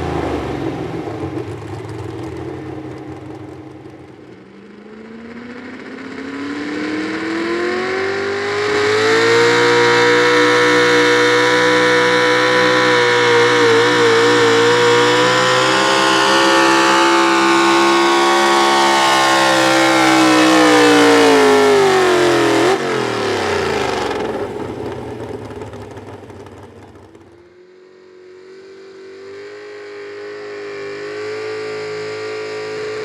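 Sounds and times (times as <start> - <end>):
truck engine at high revs: 0.0 - 33.0.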